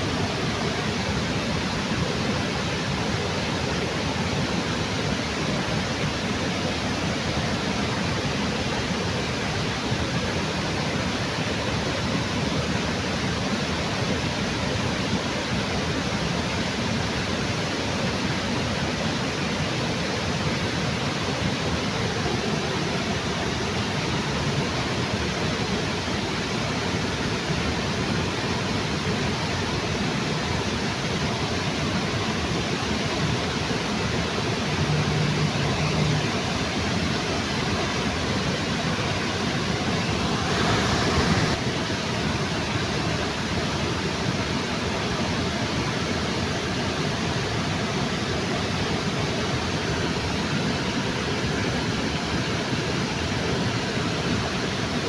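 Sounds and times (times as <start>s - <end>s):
waterfall rushing: 21.7s - 55.0s.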